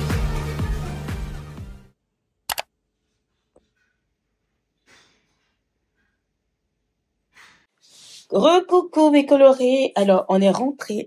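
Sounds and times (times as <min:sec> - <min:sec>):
sharp click: 0:02.5 - 0:02.7
soft breath: 0:07.3 - 0:08.3.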